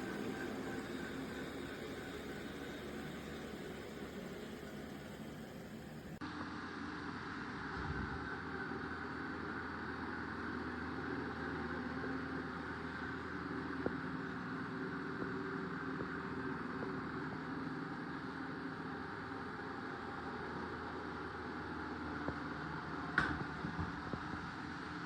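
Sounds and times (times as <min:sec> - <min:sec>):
robot vacuum humming: 0:00.0 - 0:06.2.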